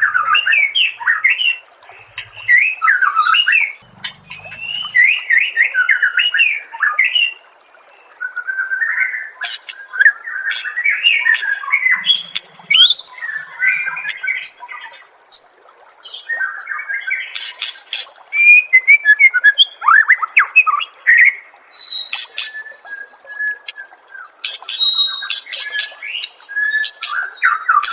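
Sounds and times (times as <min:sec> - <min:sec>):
bird sharp clicking notes: 0:01.9 - 0:02.7, 0:03.8 - 0:05.2, 0:09.4 - 0:14.7, 0:17.4 - 0:18.2, 0:22.0 - 0:22.7, 0:24.4 - 0:27.9
bird singing whistled phrases: 0:02.2 - 0:05.5, 0:09.8 - 0:15.6, 0:18.3 - 0:23.9, 0:24.7 - 0:27.9.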